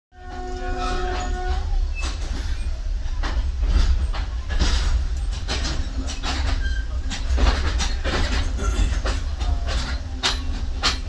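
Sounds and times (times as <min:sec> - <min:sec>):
train low rumble: 0:00.1 - 0:11.0
wheels clattering over rail joints: 0:00.2 - 0:11.0
faint squeaks: 0:05.8 - 0:07.3.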